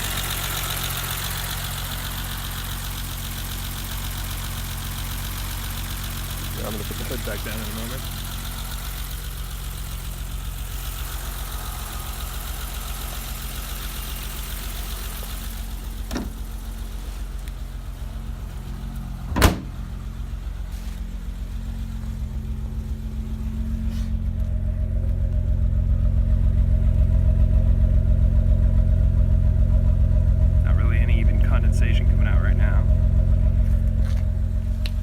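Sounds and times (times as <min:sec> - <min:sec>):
car engine idling: 0:00.0 - 0:35.0
car hood slamming shut: 0:16.1 - 0:16.4, 0:19.3 - 0:19.8.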